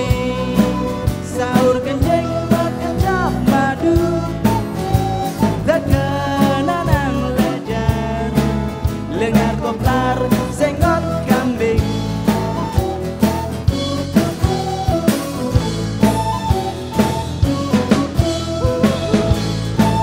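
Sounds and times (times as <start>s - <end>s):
bass notes: 0.0s - 20.0s
bending melody line: 0.0s - 20.0s
drum beat: 9.2s - 20.0s.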